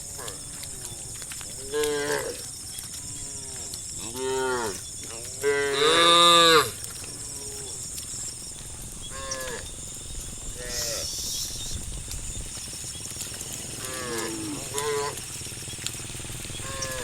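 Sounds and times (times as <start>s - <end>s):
cattle mooing: 0.0s - 2.4s, 3.0s - 7.8s, 9.1s - 9.7s, 10.5s - 11.2s, 13.4s - 15.4s, 16.6s - 17.0s.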